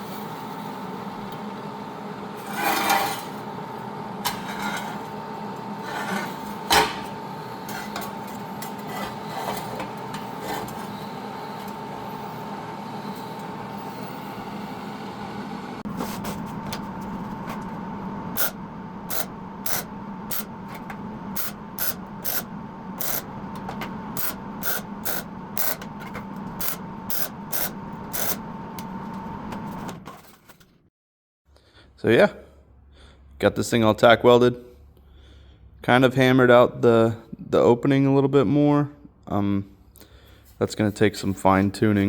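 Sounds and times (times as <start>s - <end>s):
steady hum: 0.0s - 30.3s.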